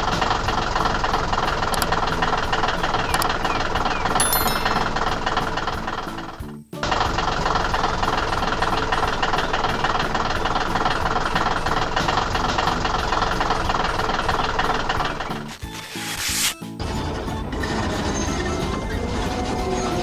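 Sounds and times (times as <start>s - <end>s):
heavy machine engine running: 0.0s - 15.6s, 16.8s - 20.0s.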